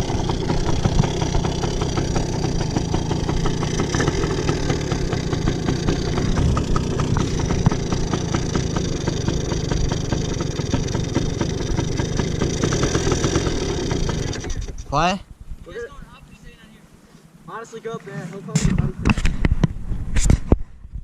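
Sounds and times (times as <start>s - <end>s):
small motorbike engine running: 0.0s - 14.9s.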